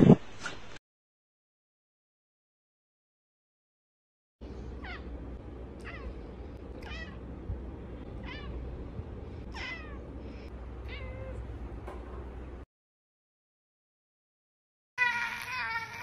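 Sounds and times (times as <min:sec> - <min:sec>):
low background hum: 0:04.4 - 0:12.7
cat meowing: 0:05.8 - 0:06.2, 0:06.8 - 0:07.2, 0:08.2 - 0:08.6, 0:09.5 - 0:10.0, 0:10.8 - 0:11.4.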